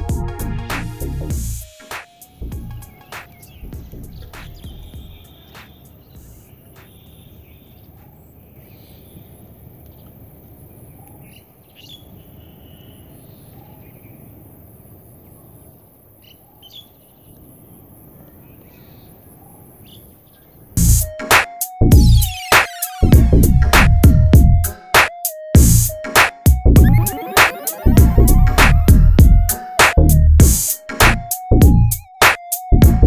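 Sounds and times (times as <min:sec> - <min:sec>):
bird chirps: 0:02.4 - 0:09.2.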